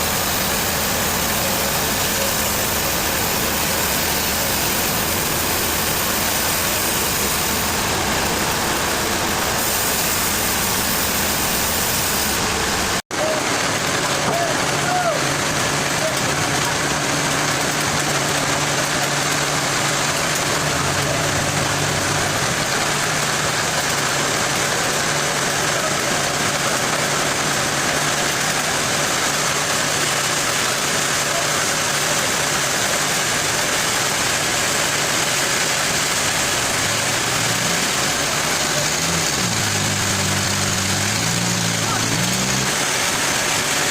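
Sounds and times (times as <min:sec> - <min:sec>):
loud rushing noise: 0:00.0 - 0:15.9
engine idling: 0:00.0 - 0:43.9.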